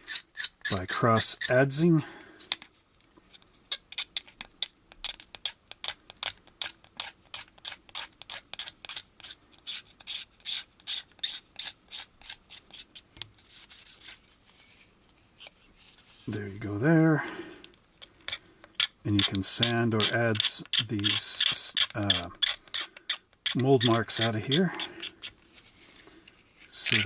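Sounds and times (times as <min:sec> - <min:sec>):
knife blade scraping plastic: 0:03.3 - 0:14.2, 0:18.0 - 0:25.5, 0:26.7 - 0:27.0.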